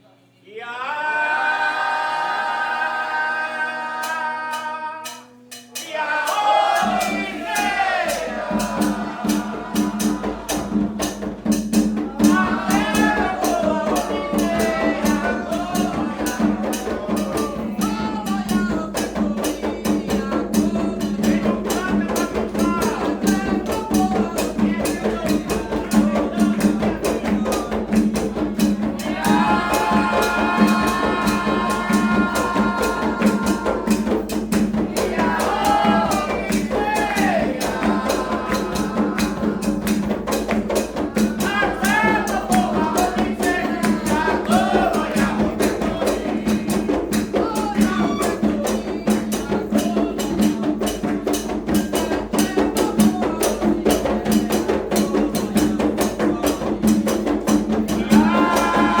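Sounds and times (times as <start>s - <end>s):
person singing: 0.6s - 11.0s, 28.9s - 34.3s, 57.9s - 59.0s
hand drums beating: 4.0s - 59.0s
rattling percussion: 4.0s - 59.0s.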